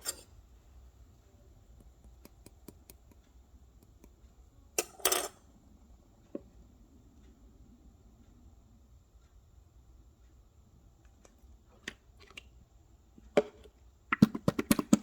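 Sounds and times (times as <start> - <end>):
light clicks and taps: 1.8 - 4.4.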